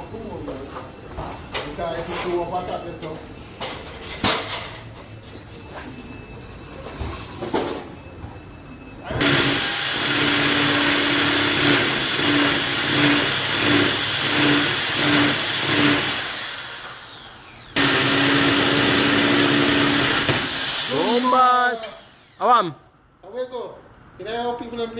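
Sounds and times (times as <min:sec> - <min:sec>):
power tool motor humming: 0:09.2 - 0:22.5.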